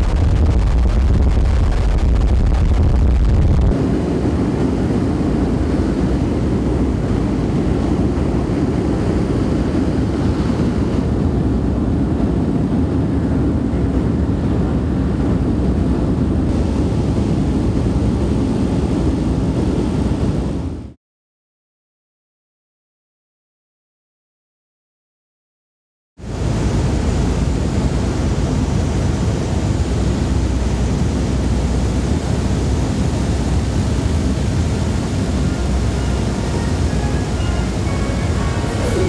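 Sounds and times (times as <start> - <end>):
aircraft engines running: 0.0 - 20.8, 26.2 - 39.0.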